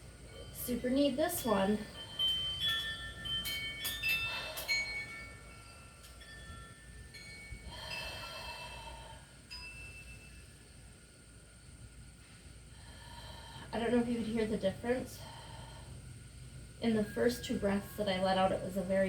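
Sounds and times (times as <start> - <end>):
chimes ringing: 0.2 - 8.9, 9.5 - 10.6
long exhaled breaths: 4.0 - 5.8, 7.2 - 10.1, 12.3 - 13.8, 15.1 - 16.6.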